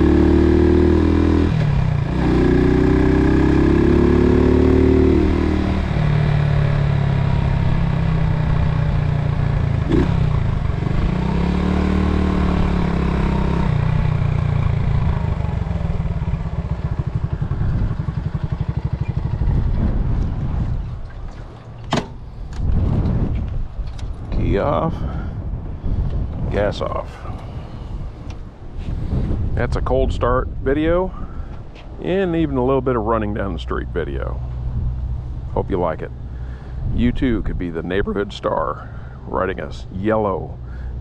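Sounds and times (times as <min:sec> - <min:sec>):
small motorcycle engine running: 0:00.0 - 0:21.0.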